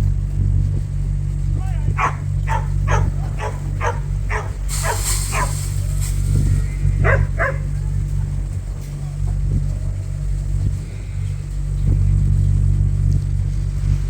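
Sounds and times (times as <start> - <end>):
low machine hum: 0.0 - 14.0
dog barking: 1.9 - 5.9, 7.0 - 8.3.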